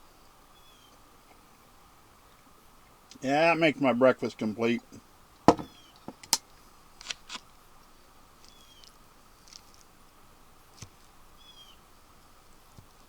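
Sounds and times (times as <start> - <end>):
faint outdoor background: 0.0 - 13.0
songbird chirping: 0.5 - 1.0, 4.2 - 6.2, 11.4 - 11.9.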